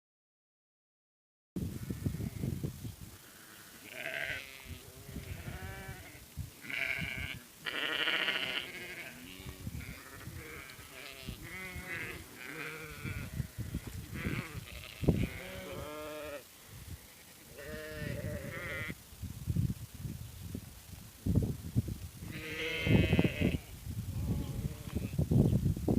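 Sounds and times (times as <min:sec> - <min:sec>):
sheep bleating: 0:03.3 - 0:13.5, 0:14.1 - 0:16.4, 0:17.1 - 0:19.0, 0:22.3 - 0:25.1.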